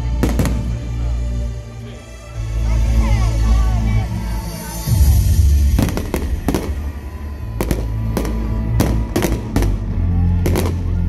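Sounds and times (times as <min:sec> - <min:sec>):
fireworks bangs: 0:00.1 - 0:00.8, 0:05.6 - 0:10.9
loud music with heavy bass: 0:03.0 - 0:11.0.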